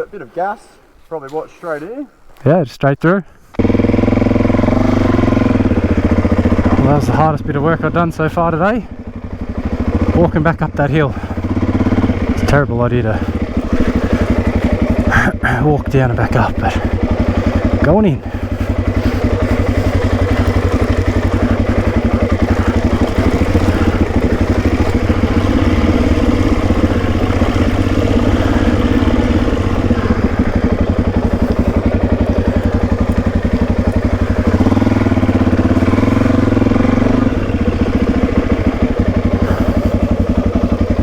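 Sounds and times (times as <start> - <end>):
dirt bike engine running: 3.6 - 41.0.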